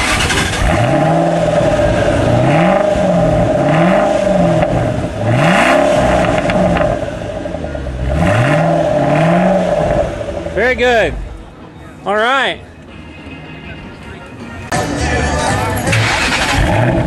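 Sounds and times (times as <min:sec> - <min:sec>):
car engine revving: 0:00.0 - 0:11.5, 0:14.7 - 0:17.0.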